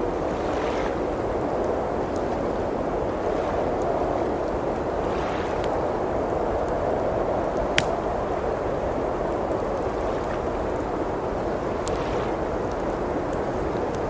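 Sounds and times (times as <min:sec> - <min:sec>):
wood fire crackling: 0:05.6 - 0:14.0.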